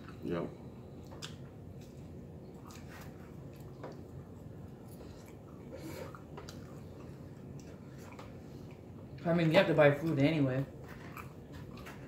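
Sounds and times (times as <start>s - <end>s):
man chewing: 1.0s - 9.2s, 10.8s - 12.0s.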